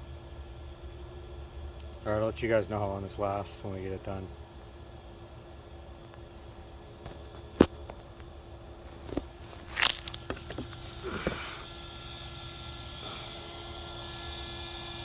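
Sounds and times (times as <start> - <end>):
small cooling fan whine: 0.0 - 15.0
small knocks and scrapes: 8.8 - 11.5.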